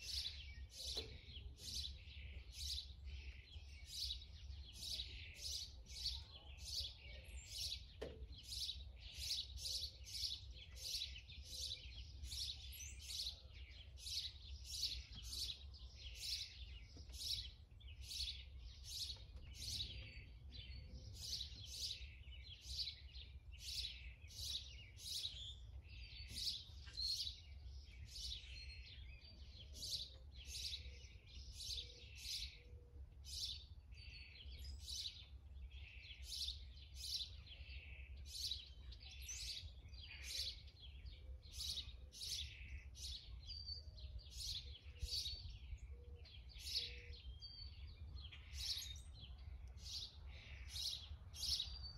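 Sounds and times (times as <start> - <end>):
small bird chirping: 0.0 - 32.7, 33.3 - 51.9.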